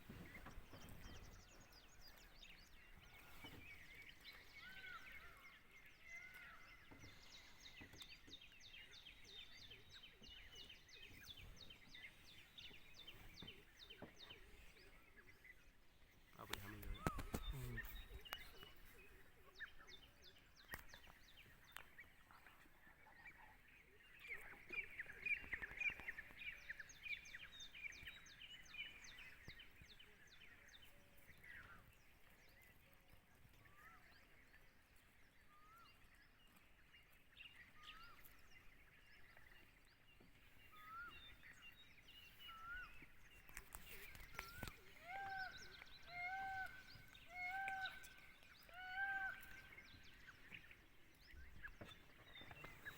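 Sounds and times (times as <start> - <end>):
rapid bird chirps: 16.4 - 18.9.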